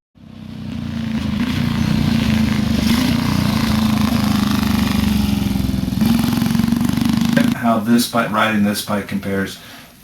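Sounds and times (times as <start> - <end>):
motorcycle engine running: 0.2 - 7.6.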